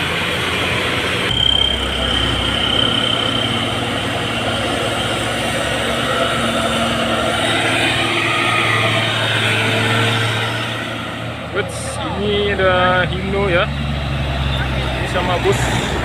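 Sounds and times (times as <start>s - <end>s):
heavy truck engines running: 0.0s - 16.0s
traffic passing: 0.0s - 16.0s
thin high whine: 1.2s - 12.1s.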